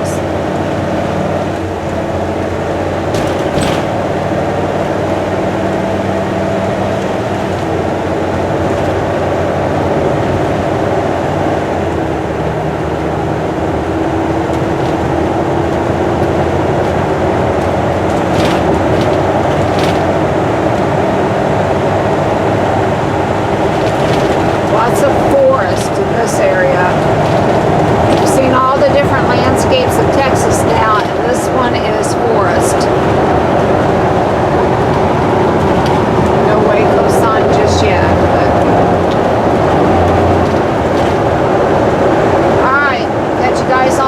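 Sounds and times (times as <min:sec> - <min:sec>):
car engine drone: 0:00.0 - 0:44.0
tyre and road noise: 0:00.0 - 0:44.0.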